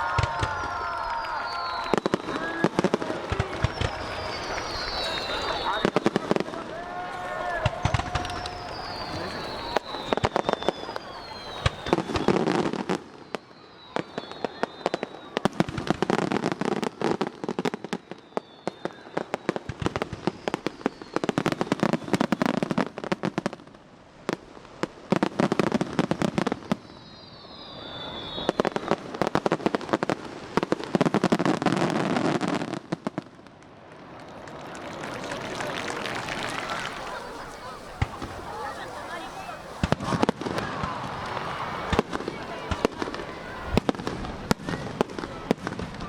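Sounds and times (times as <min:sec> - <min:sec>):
firework whistles falling in pitch: 0:00.0 - 0:06.4, 0:07.6 - 0:16.2, 0:17.5 - 0:22.7, 0:26.4 - 0:29.6
firework shells bursting and crackling: 0:00.0 - 0:23.6, 0:24.4 - 0:46.0.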